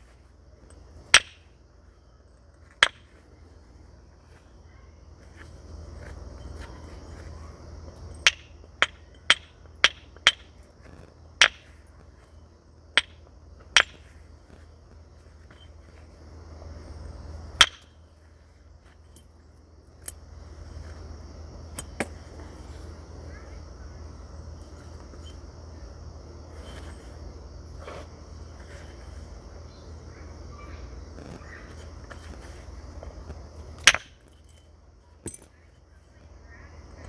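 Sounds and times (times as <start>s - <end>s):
high insect chirr: 0.0s - 37.0s
hammer striking flint: 0.7s - 1.6s, 2.3s - 3.3s, 7.9s - 16.1s, 17.5s - 18.1s, 31.1s - 36.2s.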